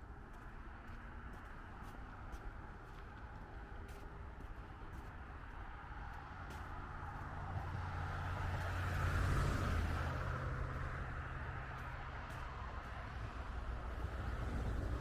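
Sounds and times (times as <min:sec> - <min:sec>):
vehicle passing by: 0:05.9 - 0:15.0.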